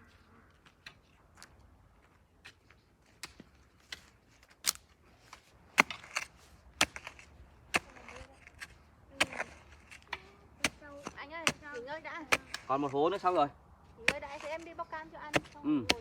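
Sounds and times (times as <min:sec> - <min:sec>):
hand tool striking stony ground: 0:03.2 - 0:13.3, 0:14.0 - 0:16.0.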